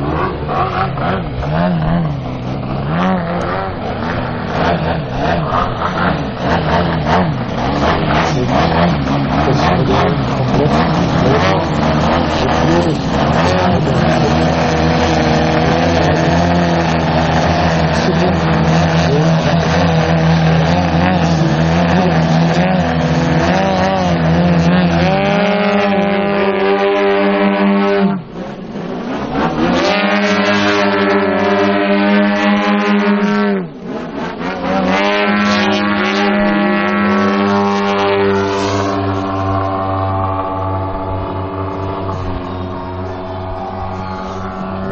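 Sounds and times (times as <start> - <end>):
model plane engines and propellers: 0.0 - 44.9.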